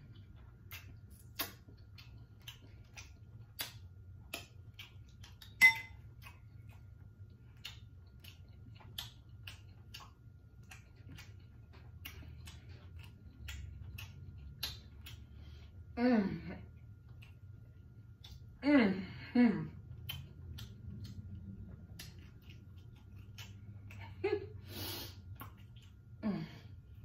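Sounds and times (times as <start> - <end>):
wet chewing and smacking: 0.0 - 16.0, 16.6 - 18.6, 19.7 - 24.2, 25.2 - 27.0.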